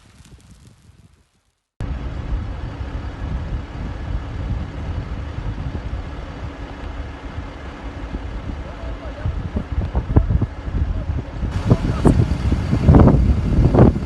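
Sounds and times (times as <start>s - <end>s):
vehicle engine low rumble: 0.0s - 14.0s.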